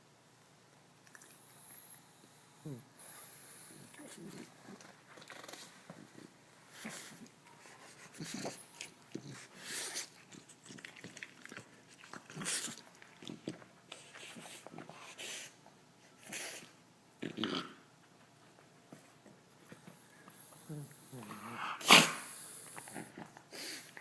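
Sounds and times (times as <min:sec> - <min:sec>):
dog snoring: 0:01.5 - 0:05.7.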